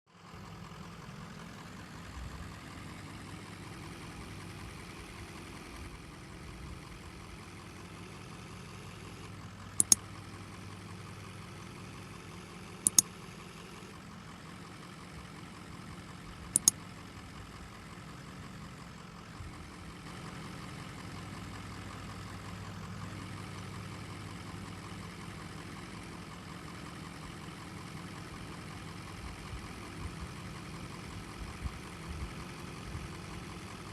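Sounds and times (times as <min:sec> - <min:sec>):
diesel engine idling: 0:00.1 - 0:33.9
sharp double clicks: 0:09.8 - 0:10.1, 0:12.8 - 0:13.1, 0:16.6 - 0:16.8.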